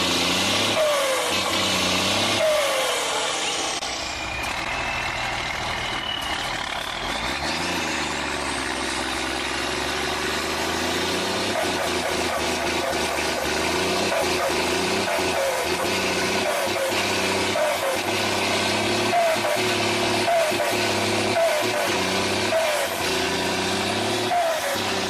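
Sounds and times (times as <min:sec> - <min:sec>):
diesel truck engine running: 0:00.0 - 0:25.0
high sliding whistle: 0:02.4 - 0:07.1.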